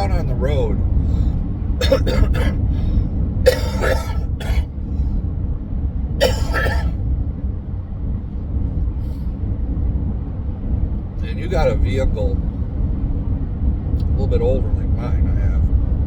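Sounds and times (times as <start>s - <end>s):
low vehicle rumble: 0.0s - 16.0s
man coughing: 1.8s - 2.7s, 3.4s - 4.7s, 6.2s - 7.0s.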